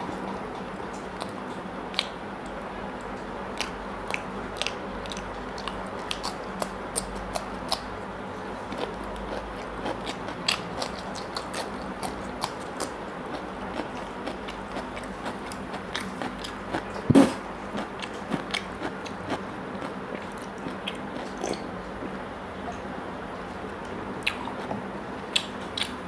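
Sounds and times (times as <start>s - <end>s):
person chewing: 3.5s - 7.9s, 8.7s - 21.8s, 24.2s - 24.7s, 25.3s - 26.0s.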